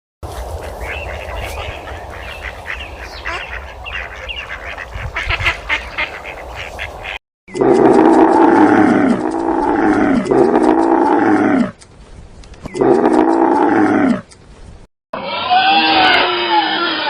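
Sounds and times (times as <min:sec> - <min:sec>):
animal calls sliding down: 0:07.5 - 0:11.8.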